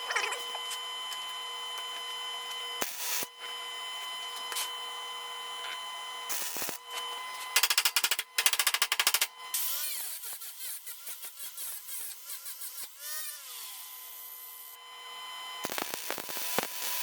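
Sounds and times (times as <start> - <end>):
welder crackling: 2.8 - 3.3, 6.3 - 6.8, 7.6 - 11.6, 15.6 - 17.0.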